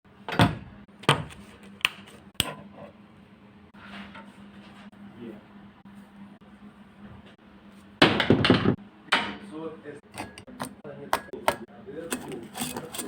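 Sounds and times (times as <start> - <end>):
soft handling noise: 10.1 - 13.0.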